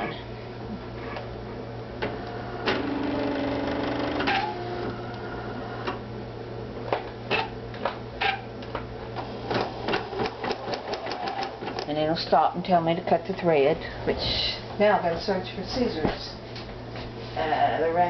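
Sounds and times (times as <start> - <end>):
sewing machine motor whine: 2.4 - 5.9.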